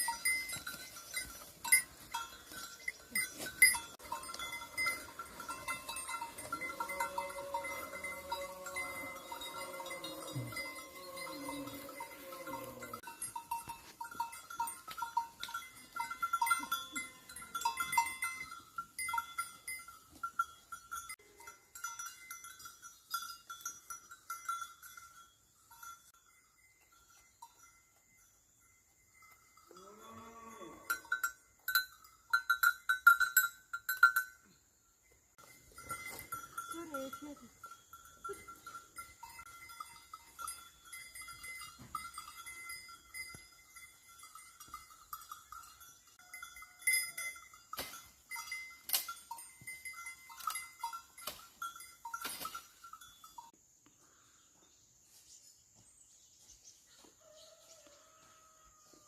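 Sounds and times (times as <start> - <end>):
livestock bells clinking: 0.0 - 54.2
animal bleating: 6.6 - 13.0.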